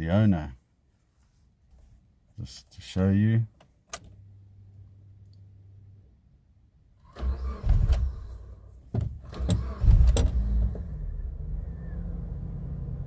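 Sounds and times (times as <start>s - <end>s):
car engine starting and idling: 6.9s - 13.0s
engine clicks and knocks: 8.9s - 10.9s.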